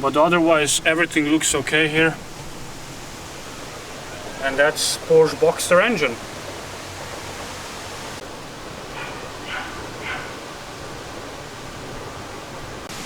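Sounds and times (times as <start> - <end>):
steady background hiss: 0.0 - 13.0
dog barking: 8.9 - 10.4.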